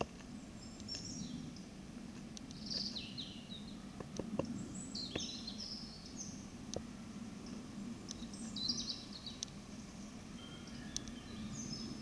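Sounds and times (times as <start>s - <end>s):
low steady hum: 0.0s - 12.0s
birds chirping and whistling: 0.4s - 1.6s, 2.5s - 3.8s, 4.5s - 6.5s, 8.2s - 12.0s.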